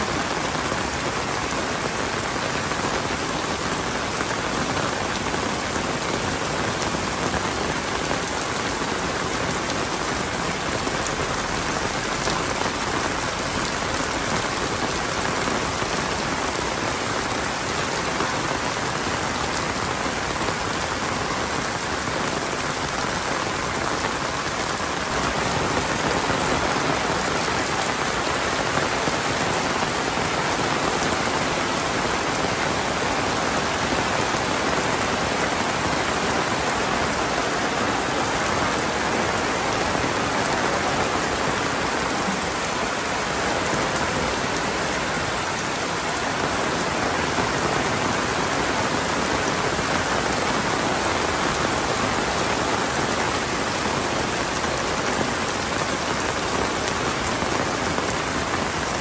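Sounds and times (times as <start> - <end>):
heavy rain pouring on grass: 0.0 - 59.0.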